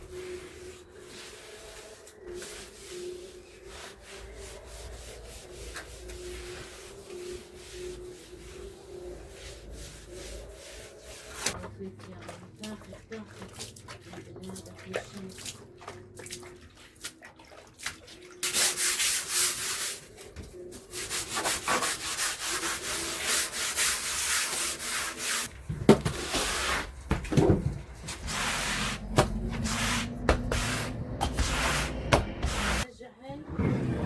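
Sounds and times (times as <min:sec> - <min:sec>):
rough rubbing strokes: 0:00.1 - 0:11.6, 0:20.9 - 0:32.9
low rumble: 0:26.9 - 0:32.8.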